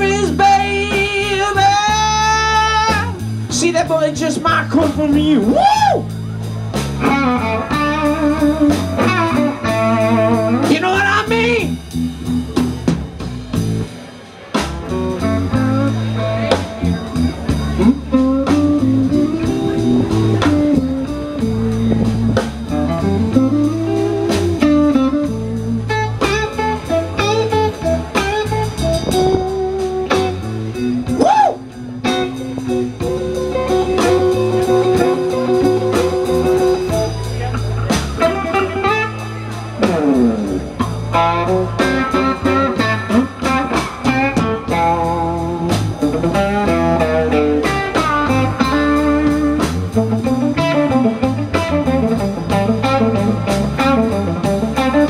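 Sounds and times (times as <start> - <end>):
blues band playing: 0.0 - 55.0
guitar with bent sliding notes: 0.0 - 55.0
steady bass line: 0.0 - 55.0.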